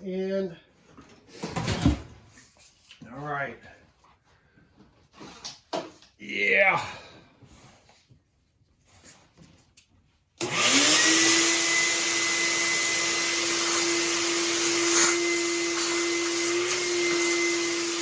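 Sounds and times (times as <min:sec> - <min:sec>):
shop vacuum motor whining: 0:10.4 - 0:18.0.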